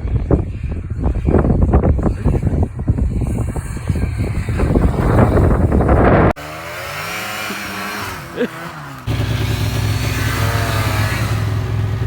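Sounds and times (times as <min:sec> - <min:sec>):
wind noise on microphone: 0:00.0 - 0:06.4
snowmobile engine pulsing revs: 0:00.0 - 0:12.0.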